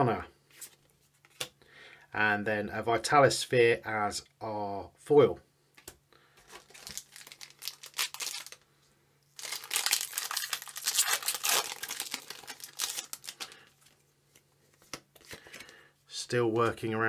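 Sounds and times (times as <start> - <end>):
foil wrapper crinkling and tearing: 6.4 - 8.6, 9.4 - 14.0.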